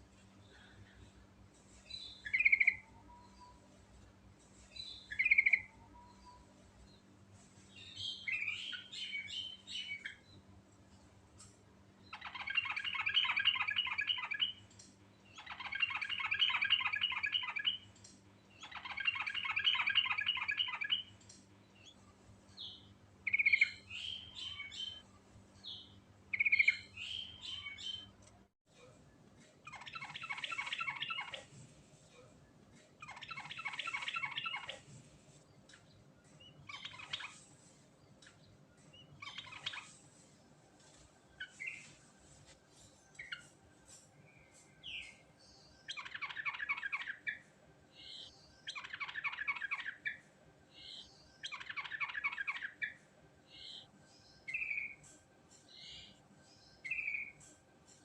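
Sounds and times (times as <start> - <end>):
bird chattering song: 1.9 - 3.6, 4.8 - 6.5, 12.1 - 14.7, 15.3 - 18.0, 18.6 - 22.0, 22.6 - 25.0, 25.6 - 28.2, 29.6 - 31.5, 33.0 - 34.8, 35.7 - 37.4, 38.2 - 40.0, 45.8 - 47.4, 48.0 - 50.2, 50.8 - 53.0, 53.6 - 56.2, 56.8 - 58.0.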